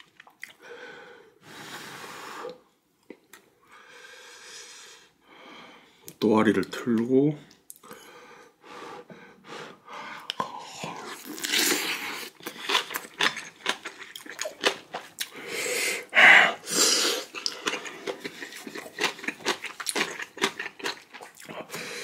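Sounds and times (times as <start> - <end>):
wet chewing: 11.0 - 15.4, 17.2 - 21.6.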